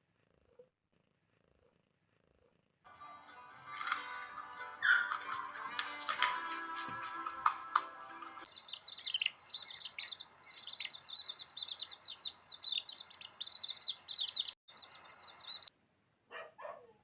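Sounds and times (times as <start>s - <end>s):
lower-pitched bird calls: 8.4s - 15.7s
small birds chirping: 8.4s - 15.7s.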